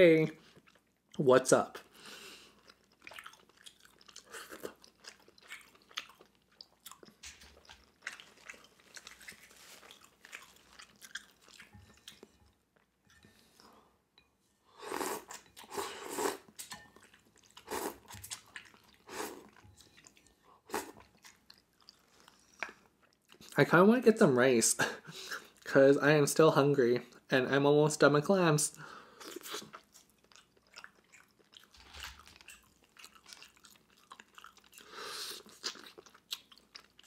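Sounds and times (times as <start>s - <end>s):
chewing with wet mouth sounds: 0.4s - 1.2s, 1.8s - 12.9s, 15.2s - 23.6s, 29.2s - 37.0s.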